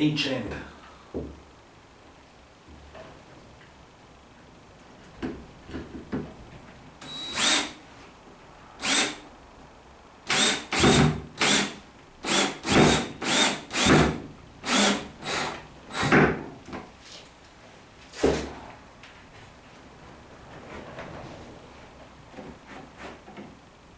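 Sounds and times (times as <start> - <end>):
drill whirring driving screws: 7.0 - 7.8, 8.8 - 9.2, 10.3 - 16.1.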